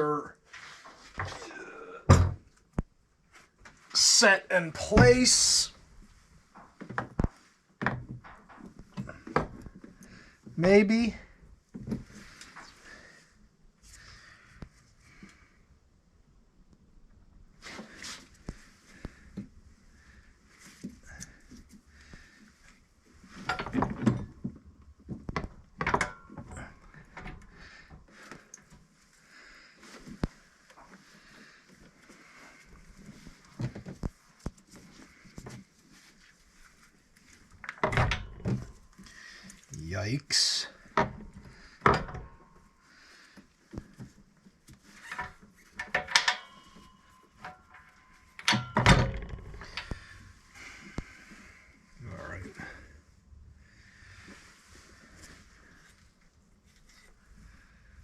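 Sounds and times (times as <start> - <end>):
metal clunks and knocks: 2.1 - 2.4, 25.4 - 26.6, 41.0 - 42.4, 45.8 - 50.0
metallic ring: 46.1 - 48.8.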